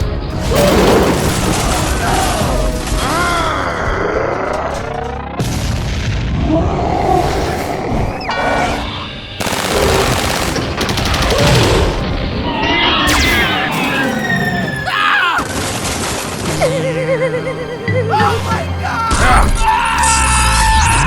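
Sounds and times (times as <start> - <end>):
background music: 0.0 - 6.5, 9.4 - 21.0
rapid gunfire and blasts: 9.4 - 13.7.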